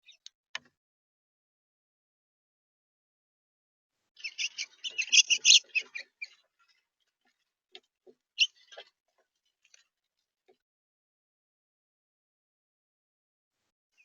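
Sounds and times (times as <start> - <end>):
small bird chirping: 0.0 - 0.3, 4.2 - 6.9, 8.3 - 9.0.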